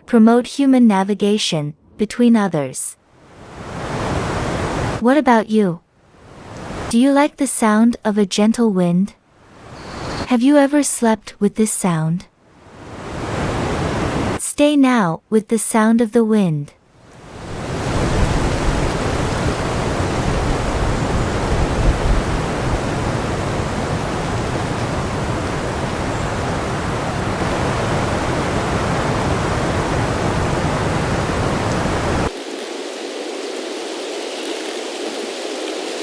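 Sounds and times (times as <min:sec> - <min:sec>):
wind blowing: 0:03.1 - 0:05.0, 0:06.0 - 0:06.9, 0:09.3 - 0:10.3, 0:12.5 - 0:14.4, 0:16.9 - 0:36.0.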